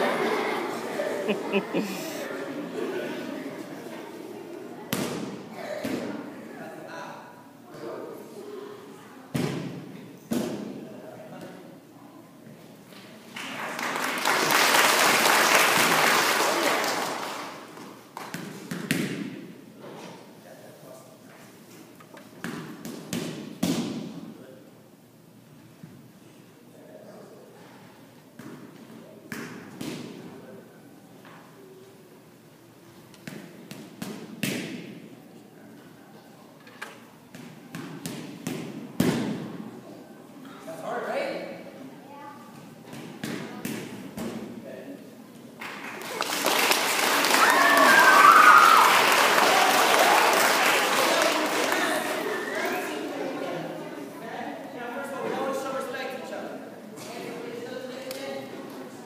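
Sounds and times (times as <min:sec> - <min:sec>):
sharp thuds and slaps in a hall: 0:04.9 - 0:06.2, 0:09.3 - 0:10.9, 0:18.2 - 0:19.6, 0:22.4 - 0:24.3, 0:28.4 - 0:30.4, 0:33.1 - 0:35.1, 0:37.3 - 0:39.7, 0:42.9 - 0:44.6
children applauding: 0:13.4 - 0:17.6, 0:45.6 - 0:52.8.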